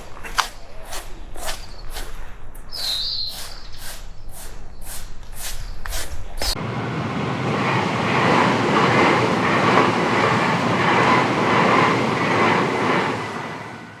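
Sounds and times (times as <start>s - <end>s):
train running along rails: 6.4s - 14.0s.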